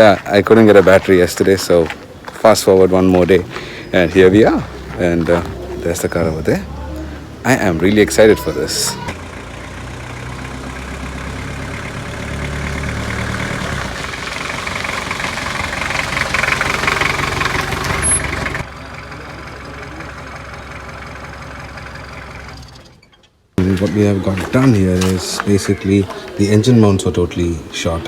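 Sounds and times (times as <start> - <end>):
diesel engine idling clatter: 0.0 - 28.0.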